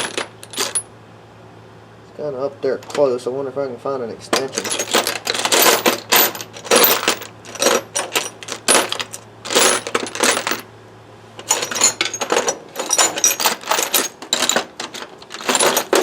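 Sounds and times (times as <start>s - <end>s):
metal hand tools clinking: 4.4s - 10.6s, 11.4s - 16.0s.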